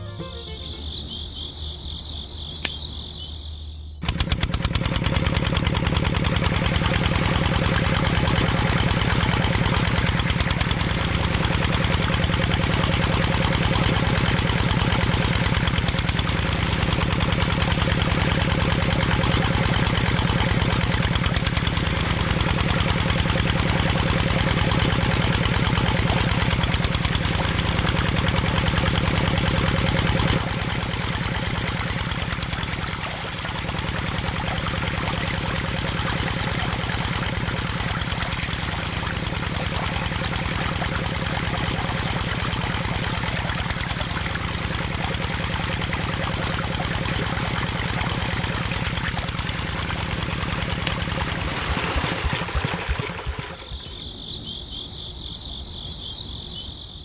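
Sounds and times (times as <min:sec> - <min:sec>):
small motor chugging: 0:00.0 - 0:56.8
small switch clicking: 0:02.6 - 0:03.1.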